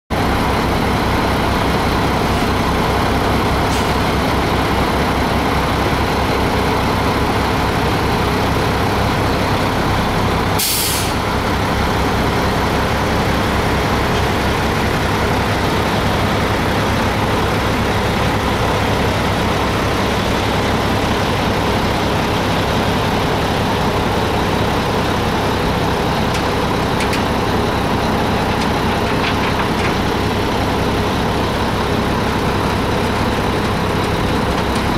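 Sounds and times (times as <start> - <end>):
diesel engine idling: 0.1 - 34.9
air brake hiss: 10.6 - 11.2.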